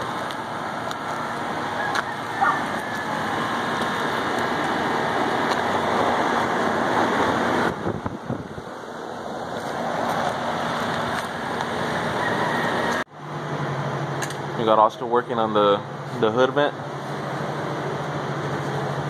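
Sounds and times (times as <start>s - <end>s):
rushing air: 3.2s - 13.0s.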